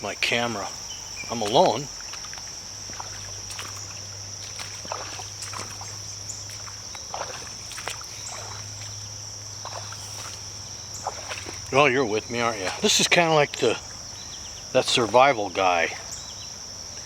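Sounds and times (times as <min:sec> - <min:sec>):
crickets chirping: 0:00.0 - 0:17.0
rustling through brush: 0:00.7 - 0:13.1.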